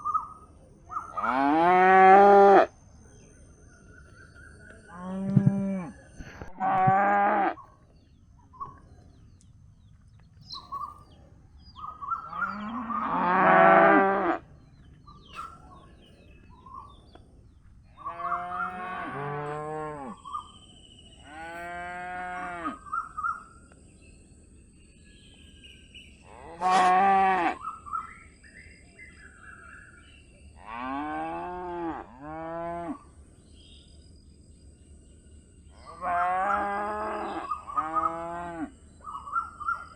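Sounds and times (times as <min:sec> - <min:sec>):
calf mooing: 0:26.4 - 0:27.6.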